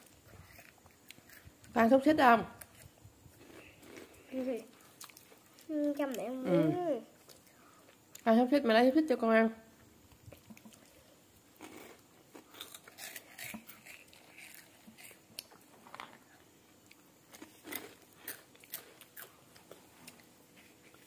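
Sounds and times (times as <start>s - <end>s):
child crunching snack sticks: 0.0s - 1.7s, 2.6s - 6.3s, 11.6s - 16.3s, 16.9s - 20.3s.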